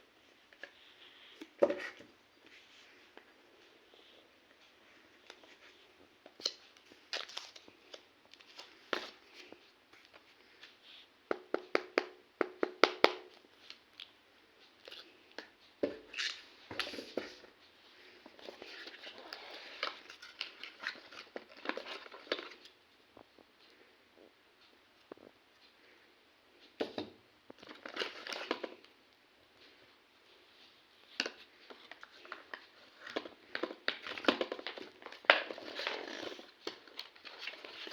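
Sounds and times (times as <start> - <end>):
clicks and taps on a box: 11.3 - 13.3
wrapping crinkling and tearing: 31.6 - 37.9.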